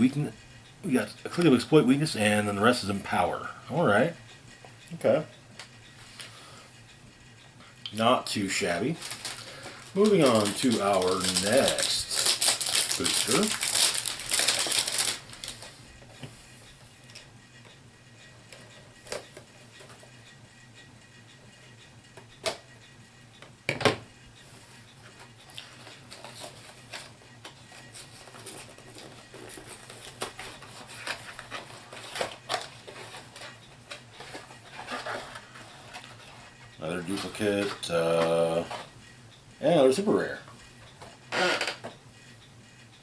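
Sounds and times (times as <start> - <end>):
packaging crinkling: 8.9 - 15.8.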